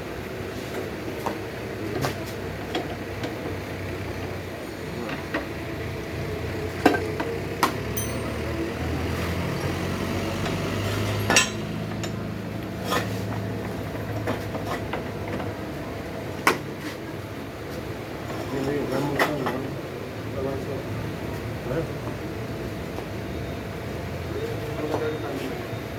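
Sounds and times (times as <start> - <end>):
metal tools clinking and knocking: 7.9 - 8.9, 11.1 - 12.2.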